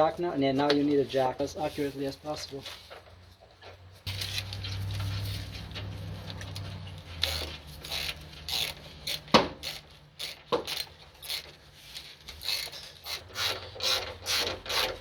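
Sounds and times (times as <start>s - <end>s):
jack being pumped: 6.3s - 11.6s.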